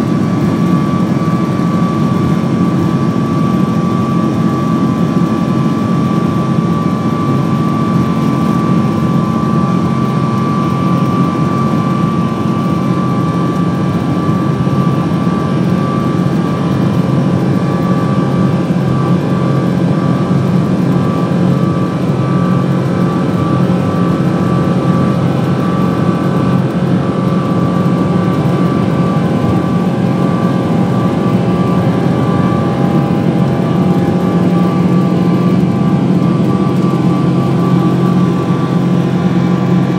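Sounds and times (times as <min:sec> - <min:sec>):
high engine whine: 0:00.0 - 0:39.9
jet engine rumble in cabin: 0:00.0 - 0:39.9.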